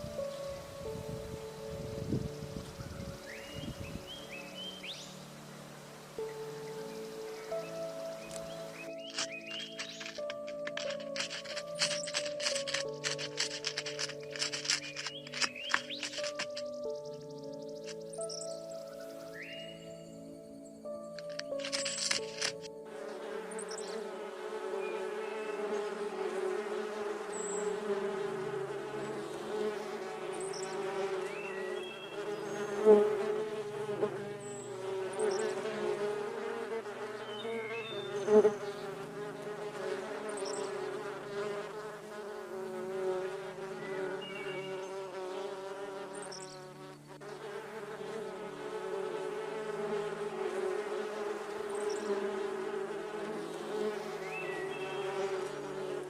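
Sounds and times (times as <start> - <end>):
insects buzzing: 0.0 - 56.0.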